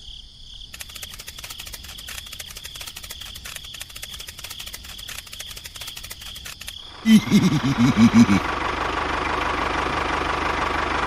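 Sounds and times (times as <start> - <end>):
insects chirping: 0.0 - 8.5.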